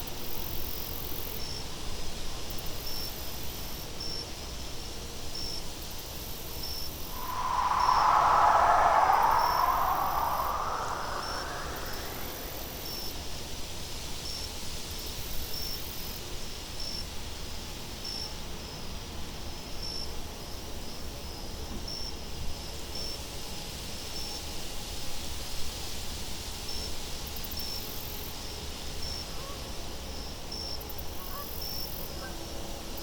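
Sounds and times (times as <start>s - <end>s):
wind blowing: 7.1s - 13.3s
crickets chirping: 7.2s - 13.0s.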